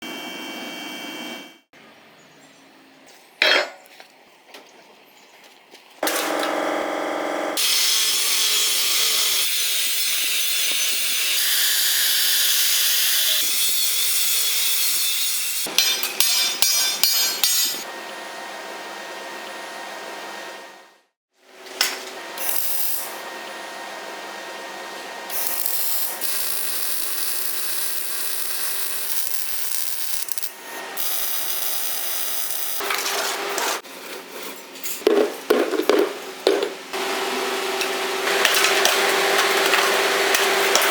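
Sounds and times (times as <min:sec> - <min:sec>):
sawing or grinding noise: 0:21.5 - 0:40.9.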